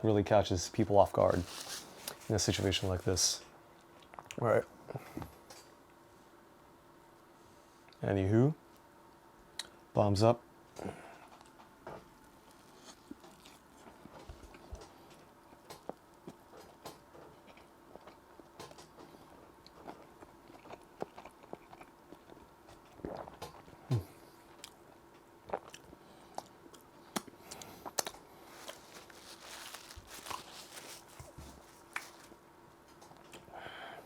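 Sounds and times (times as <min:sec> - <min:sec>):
close chewing of burger: 0:12.5 - 0:14.9, 0:15.6 - 0:24.8, 0:25.4 - 0:32.3.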